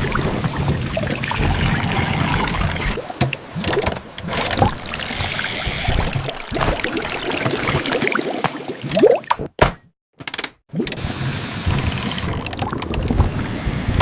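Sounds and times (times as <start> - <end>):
water sloshing and trickling: 0.0 - 9.6.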